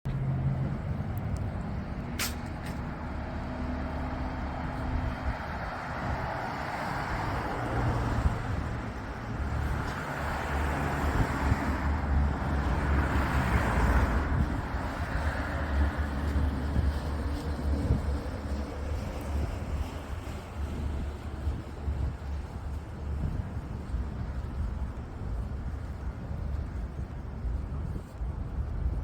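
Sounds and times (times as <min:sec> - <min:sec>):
street traffic rumble: 0:00.1 - 0:29.0
sharp click: 0:02.2 - 0:02.8.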